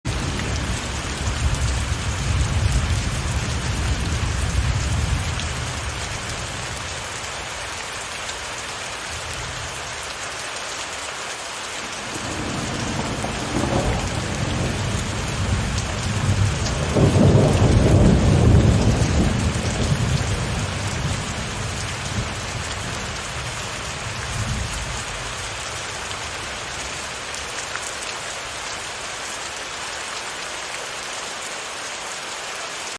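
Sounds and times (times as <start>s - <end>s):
heavy rain: 0.0s - 32.9s
rolling thunder: 12.0s - 22.4s.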